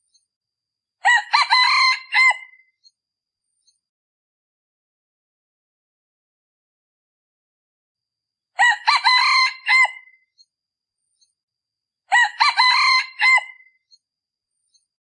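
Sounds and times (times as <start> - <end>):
rooster crowing: 1.0 - 2.6, 8.6 - 10.2, 12.1 - 13.7.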